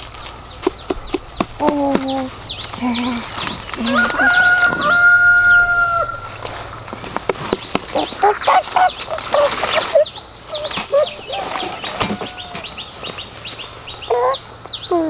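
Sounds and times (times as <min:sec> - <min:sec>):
small birds chirping: 0:00.0 - 0:15.0
hens clucking: 0:00.4 - 0:15.0.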